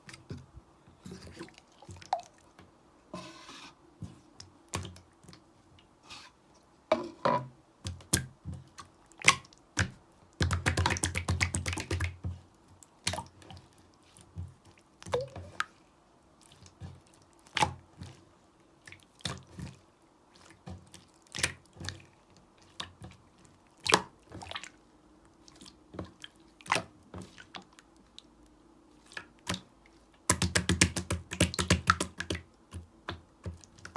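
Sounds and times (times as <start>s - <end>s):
slime squelching and popping: 7.9s - 12.2s, 30.3s - 33.9s.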